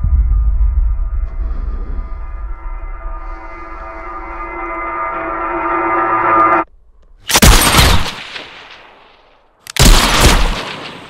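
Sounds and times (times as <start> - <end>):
musical drone: 0.0 - 7.1
gunfire bursts with echo: 9.8 - 11.0.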